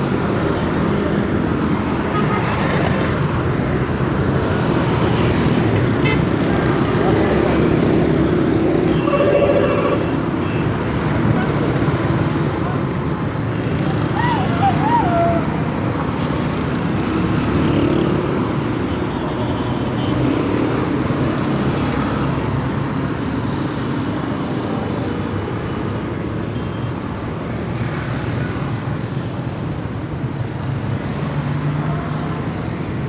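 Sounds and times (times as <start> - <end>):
road traffic passing: 0.0 - 25.0.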